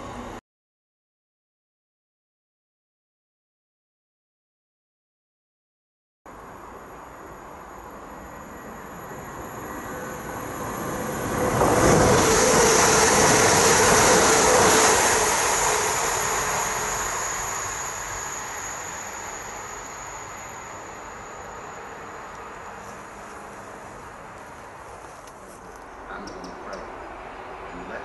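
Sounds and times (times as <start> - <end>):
train passing with rumble: 0.0 - 0.4, 6.3 - 28.0
high steady whine: 6.3 - 28.0.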